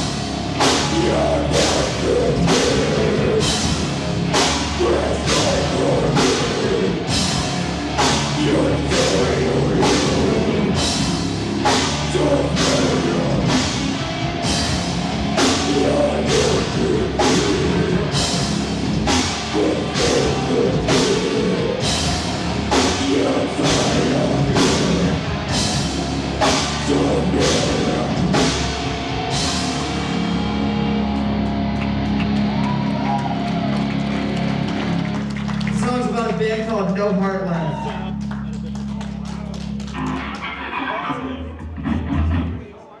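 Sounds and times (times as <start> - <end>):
drums striking: 0.0 - 30.3
heavy rock band playing: 0.0 - 37.5, 38.2 - 42.7.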